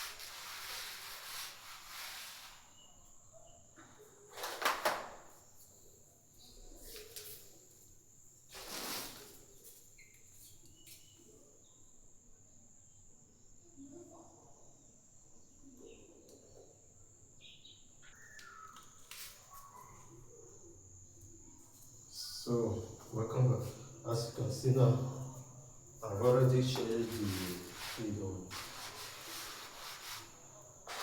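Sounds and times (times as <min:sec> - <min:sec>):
faint bird calls: 0:17.4 - 0:20.6
high-pitched insect trill: 0:17.4 - 0:31.0
brief rustling: 0:26.2 - 0:31.0.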